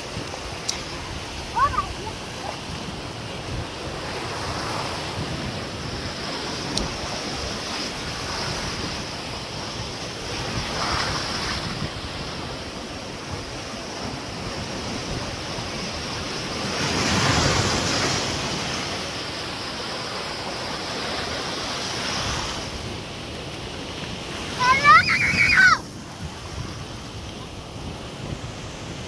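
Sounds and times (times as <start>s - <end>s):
wave breaking: 0.0s - 9.2s, 24.1s - 29.0s
wind on microphone: 0.0s - 19.5s, 21.1s - 29.0s
ocean surf washing: 0.0s - 29.0s.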